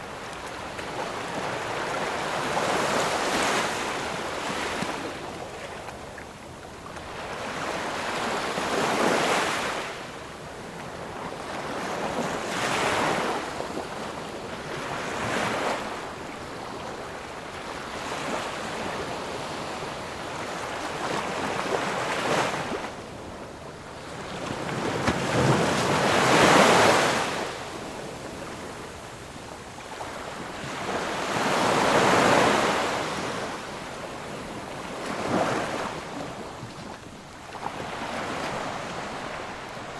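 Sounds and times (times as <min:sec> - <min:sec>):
waves breaking: 0:23.9 - 0:39.9.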